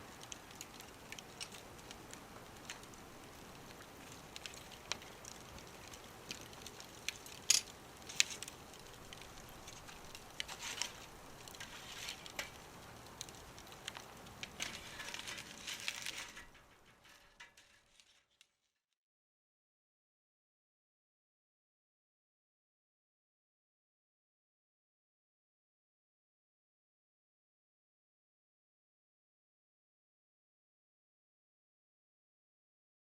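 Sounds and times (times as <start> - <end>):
fire pops: 0.0 - 18.6
wood fire crackling: 0.0 - 18.7.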